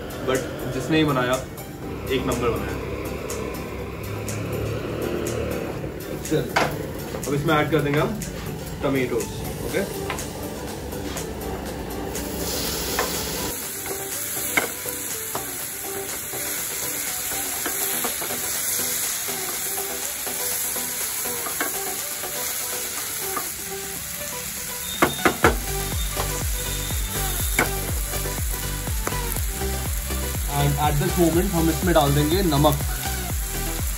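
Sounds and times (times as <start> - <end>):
vegetables sizzling in hot oil: 12.1 - 33.9.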